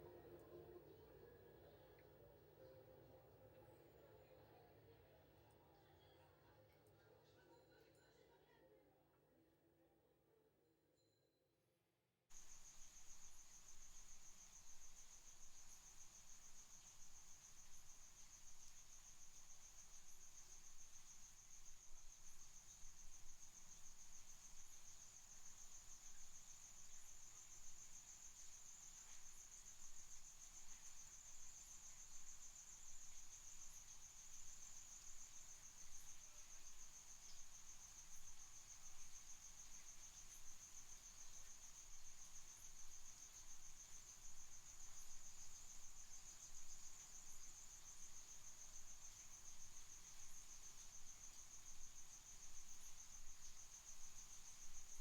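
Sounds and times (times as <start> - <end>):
crickets trilling: 12.4 - 55.0.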